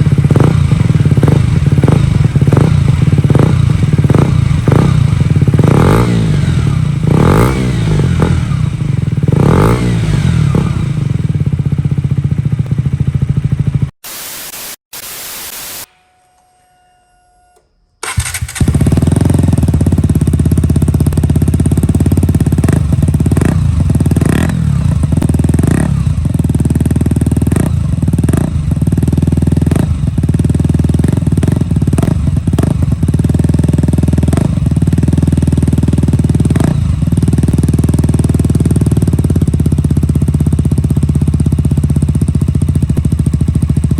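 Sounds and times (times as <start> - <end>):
motorcycle engine revving: 0.0 - 14.0, 18.0 - 43.9
short bursts of hiss: 14.0 - 16.0.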